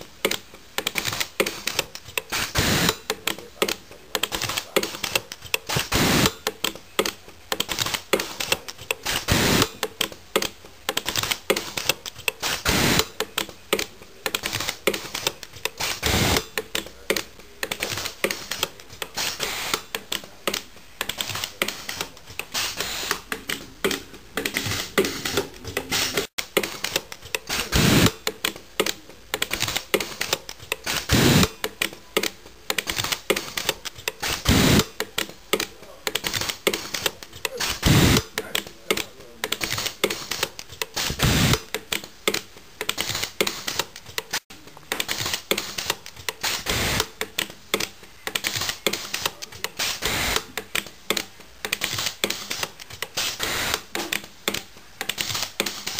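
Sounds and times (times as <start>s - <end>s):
heavier welder crack: 0.8s - 3.1s, 3.7s - 6.5s, 7.6s - 9.8s, 11.0s - 13.2s, 14.4s - 28.3s, 28.9s - 31.6s, 32.8s - 34.9s, 36.2s - 41.7s, 45.0s - 47.2s, 48.4s - 51.2s, 51.8s - 55.9s.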